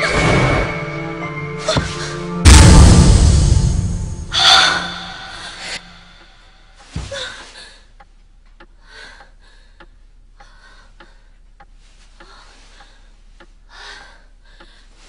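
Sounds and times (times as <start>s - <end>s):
soft breaths: 5.3s - 15.0s
faint ticks: 6.2s - 15.0s.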